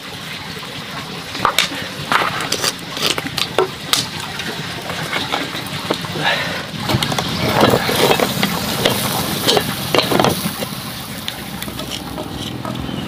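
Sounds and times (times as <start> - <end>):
food scraped in a hot pan: 7.6 - 10.9
food sizzling in a pan: 7.8 - 12.4.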